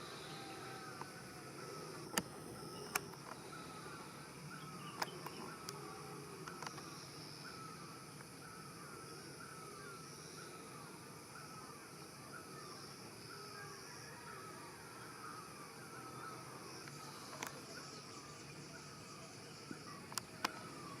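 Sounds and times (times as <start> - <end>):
bird chirping: 0.0 - 11.6.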